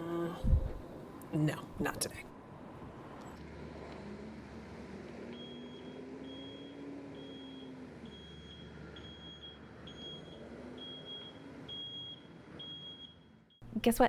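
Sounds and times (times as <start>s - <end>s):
faint background hum: 0.0s - 12.1s, 13.3s - 14.0s.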